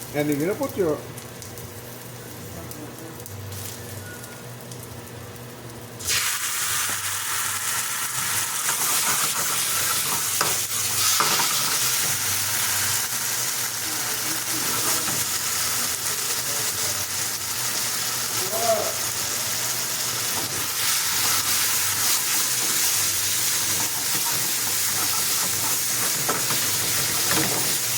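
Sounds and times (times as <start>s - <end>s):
food sizzling in a pan: 0.0s - 27.9s
utensil scraping while stirring: 20.9s - 27.9s.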